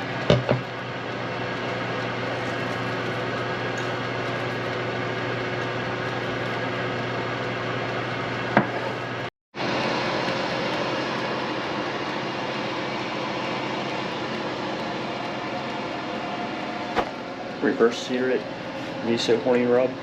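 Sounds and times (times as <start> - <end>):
appliance motor humming: 0.0 - 20.0.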